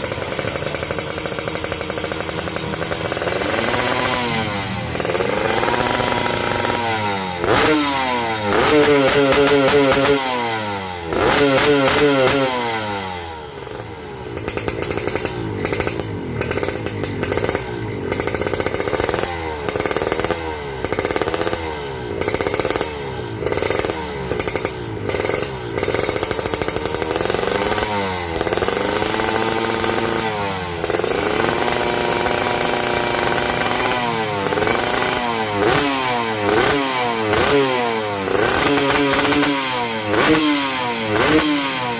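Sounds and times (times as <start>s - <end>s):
engine idling unevenly: 0.0s - 7.7s, 13.3s - 21.4s
two-stroke engine revving: 0.0s - 41.9s.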